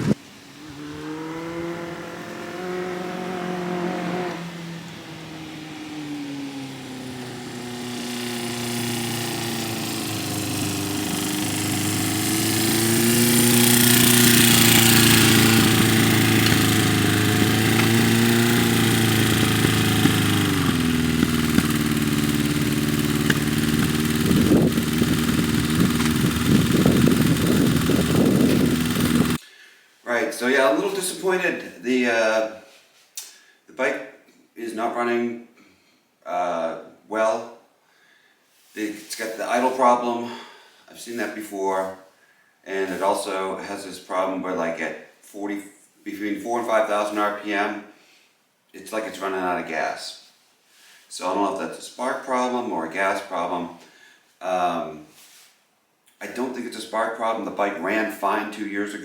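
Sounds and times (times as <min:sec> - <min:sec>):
motorcycle engine running: 0:00.0 - 0:29.4.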